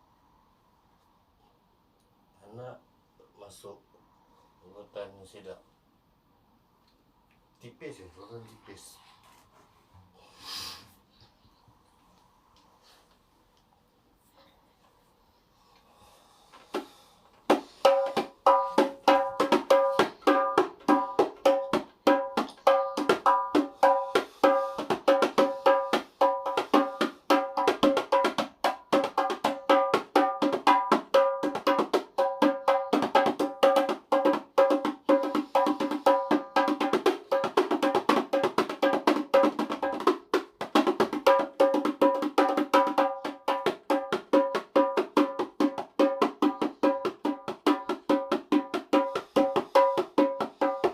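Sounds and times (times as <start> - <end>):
hand drums in fast rhythm: 17.5 - 50.9.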